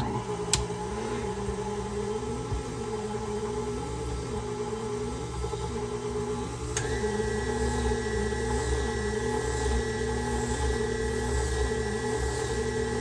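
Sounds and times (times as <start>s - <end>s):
stand mixer motor running: 4.4s - 13.0s.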